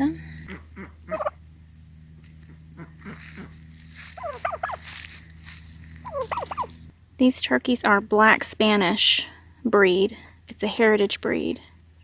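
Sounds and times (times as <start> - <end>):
turkey calling: 0.4 - 1.4, 2.7 - 6.9.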